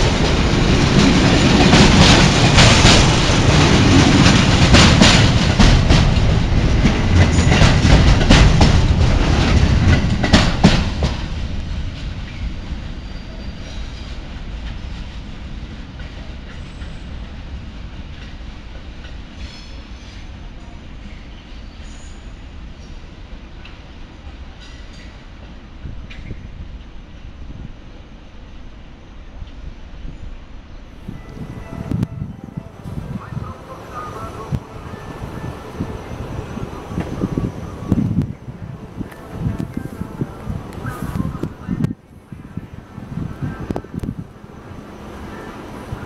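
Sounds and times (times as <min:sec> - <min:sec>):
wheels clicking over rail joints: 0:00.0 - 0:12.5
train passing at speed: 0:00.0 - 0:46.0.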